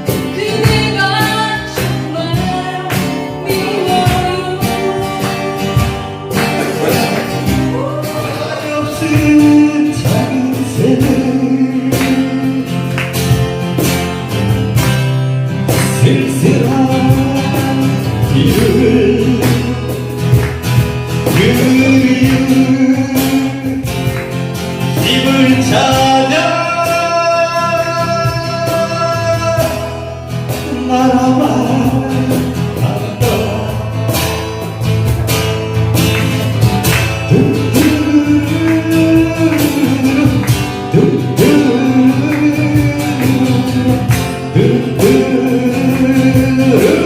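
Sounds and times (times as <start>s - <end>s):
person singing: 0.0s - 13.0s, 15.9s - 20.1s, 21.2s - 24.0s, 25.0s - 30.0s, 30.6s - 34.0s, 37.3s - 47.0s
acoustic guitar strumming: 0.0s - 47.0s.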